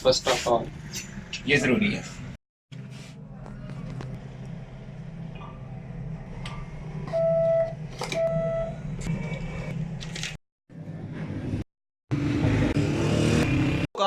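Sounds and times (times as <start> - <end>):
atm beeps: 7.1 - 8.8.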